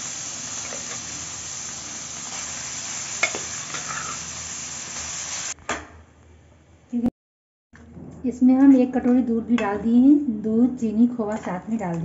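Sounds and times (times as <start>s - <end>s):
carrots sizzling in ghee: 0.0s - 5.6s.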